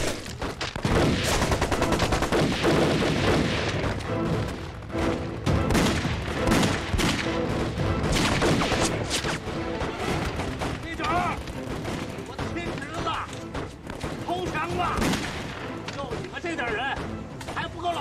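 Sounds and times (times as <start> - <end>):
rapid gunfire: 0.0 - 3.9, 8.0 - 12.1
background music: 0.0 - 18.0.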